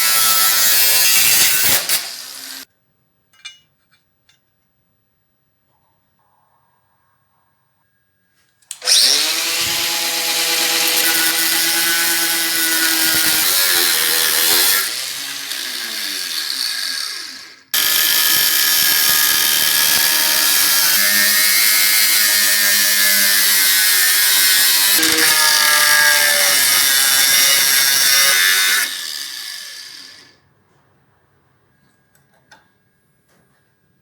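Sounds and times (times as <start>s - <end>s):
electric power tool running: 8.7s - 30.3s.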